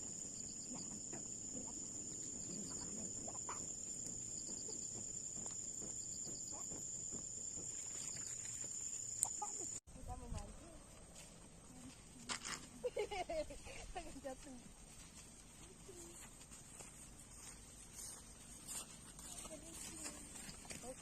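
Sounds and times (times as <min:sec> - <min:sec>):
faint low animal calls: 0:00.4 - 0:05.1.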